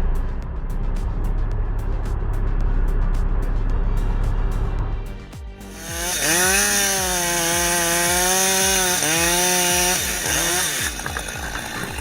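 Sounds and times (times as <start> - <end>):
background music with bass beat: 0.0 - 12.0
chainsaw revving: 5.6 - 12.0.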